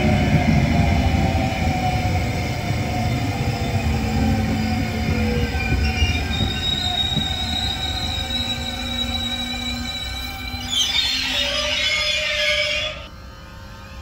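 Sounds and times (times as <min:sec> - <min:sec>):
train rolling past with whine: 0:00.0 - 0:14.0
high brake squeal: 0:04.6 - 0:13.1.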